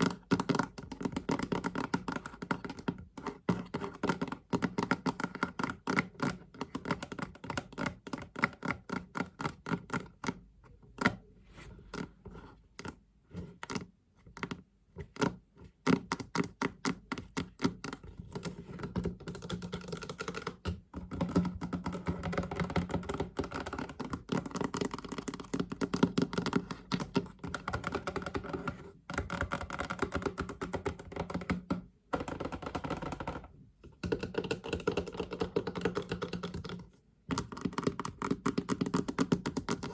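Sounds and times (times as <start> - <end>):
fast tapping on chest: 15.9 - 39.9.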